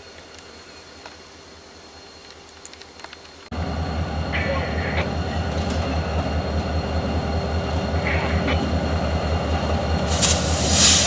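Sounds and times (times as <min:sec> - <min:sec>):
diesel locomotive engines throbbing: 0:03.5 - 0:11.0.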